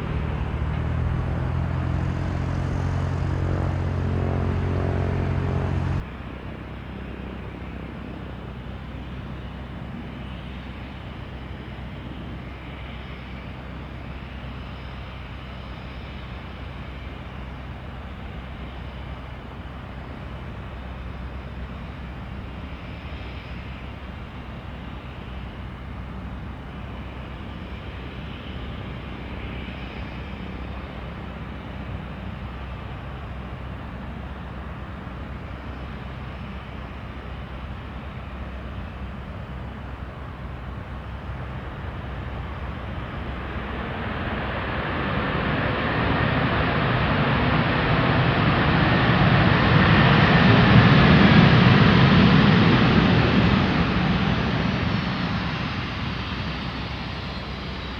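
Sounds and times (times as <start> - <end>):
loud pitched hum: 0.0 - 6.0
jet engine rumble: 0.0 - 6.1, 22.2 - 57.9.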